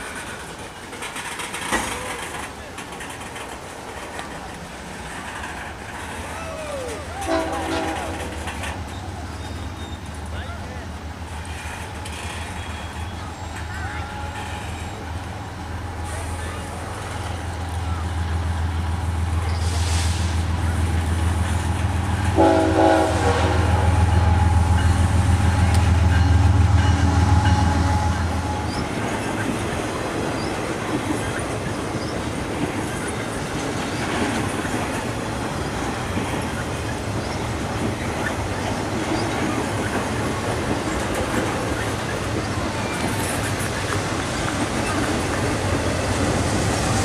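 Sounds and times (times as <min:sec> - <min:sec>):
locomotive engine drone: 0:00.0 - 0:47.0
wheels rolling on rails: 0:00.0 - 0:47.0
train horn blast: 0:07.2 - 0:08.6, 0:22.3 - 0:28.9.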